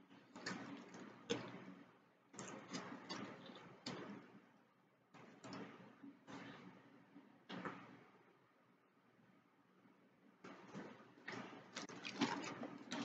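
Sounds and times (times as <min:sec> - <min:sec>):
food packaging clicks and rustles: 0:11.7 - 0:13.0
chewing: 0:11.8 - 0:13.0.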